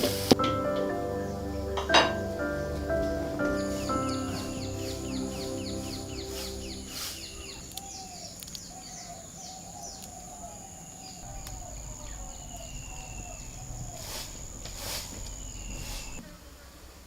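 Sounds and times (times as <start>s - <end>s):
high insect drone: 0.0s - 16.2s
low wavering bird calls: 0.0s - 16.2s
faint clicks: 7.7s - 8.8s.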